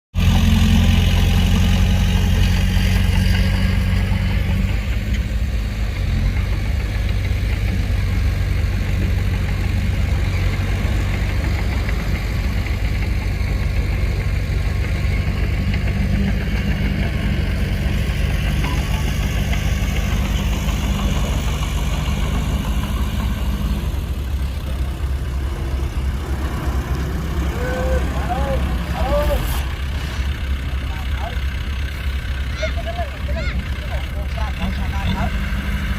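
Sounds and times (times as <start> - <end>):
heavy diesel engine running: 0.1 - 35.9.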